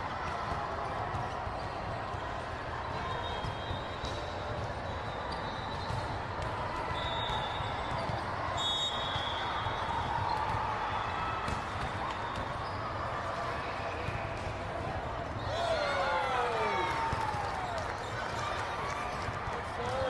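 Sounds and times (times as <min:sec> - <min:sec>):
hubbub of spectators' voices: 0:00.0 - 0:20.0
sneaker squeaks on court floor: 0:03.1 - 0:06.2, 0:11.8 - 0:13.0.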